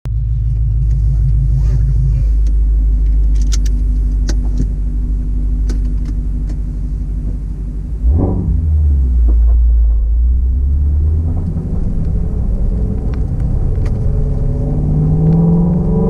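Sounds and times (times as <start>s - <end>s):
car engine running low: 0.0s - 16.0s
engine revving: 0.1s - 6.6s, 8.0s - 16.0s.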